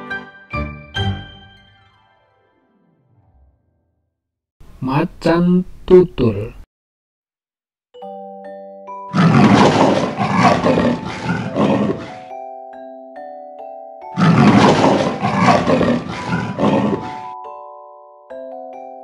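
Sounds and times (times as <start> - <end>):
leopard roaring: 9.1 - 12.3, 14.2 - 17.3.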